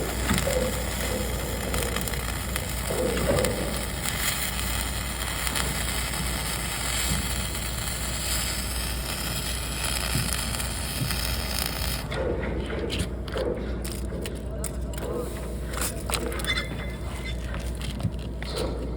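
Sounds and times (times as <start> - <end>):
welding arc crackling and hissing: 0.0 - 12.1.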